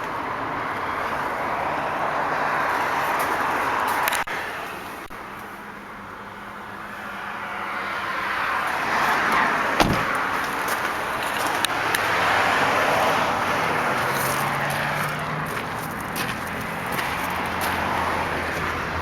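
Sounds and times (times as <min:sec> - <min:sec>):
traffic passing by: 0:00.0 - 0:19.0
sharp thud: 0:09.8 - 0:10.2.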